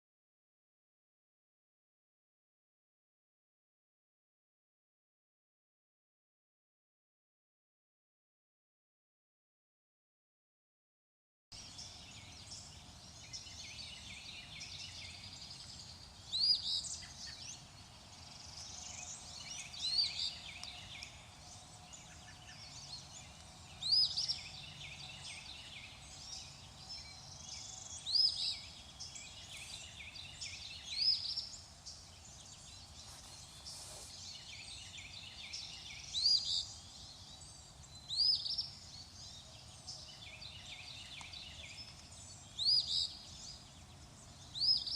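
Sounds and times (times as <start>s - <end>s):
chorus of birds chirping: 11.6s - 44.9s.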